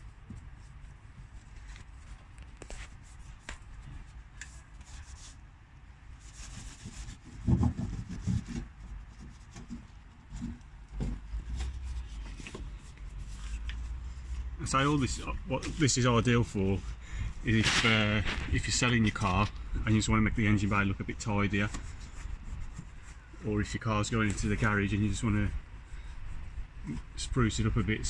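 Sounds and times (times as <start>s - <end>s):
brush scrubbing: 6.2s - 19.6s, 20.5s - 24.7s.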